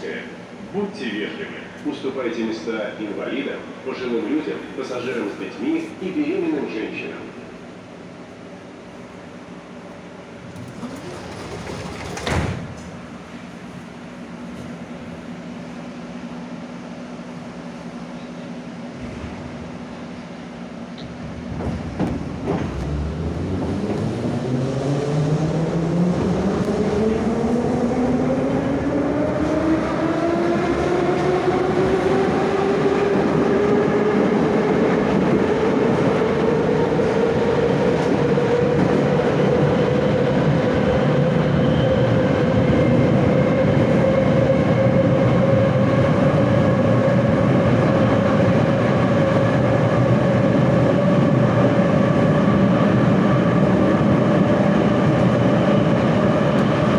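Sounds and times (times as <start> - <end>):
metro train motors whining: 0.0 - 56.9
wheels rumbling on rail: 9.9 - 16.6, 17.2 - 56.9.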